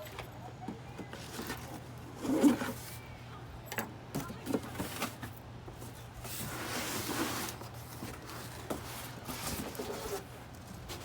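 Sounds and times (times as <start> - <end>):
cardboard box rustling and scraping: 1.2 - 3.0, 4.5 - 11.0.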